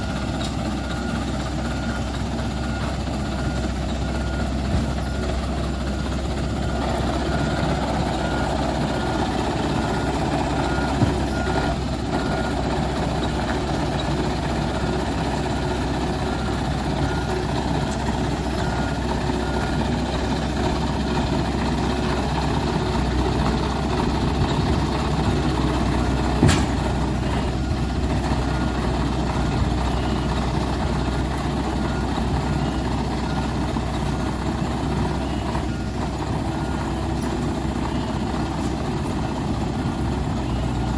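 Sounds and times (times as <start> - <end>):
dump truck engine running: 0.0 - 40.9
reversing beeper: 0.0 - 40.9
sharp knock: 26.4 - 26.9.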